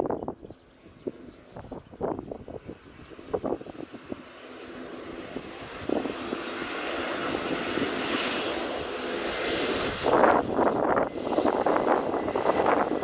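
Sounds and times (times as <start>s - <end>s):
wind buffeting microphone: 0.0s - 13.0s
jet engine roar: 1.0s - 13.0s.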